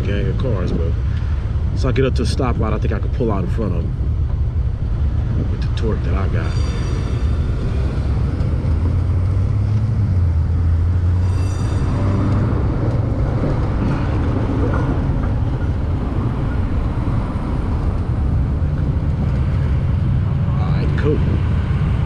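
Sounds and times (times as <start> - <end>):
faint high whine: 0.0 - 13.2
road noise: 0.0 - 22.0
rushing wind: 0.0 - 22.0.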